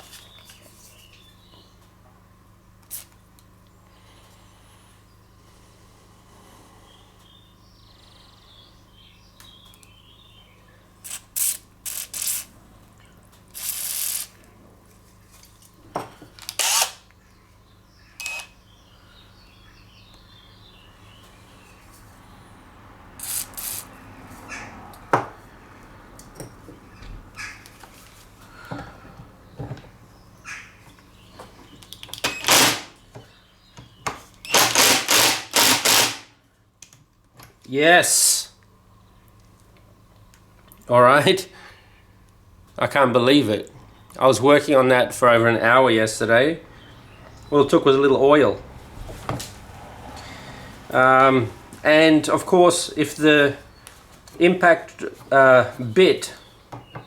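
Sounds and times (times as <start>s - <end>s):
impact driver hammering: 32.3s - 32.9s, 34.5s - 36.3s.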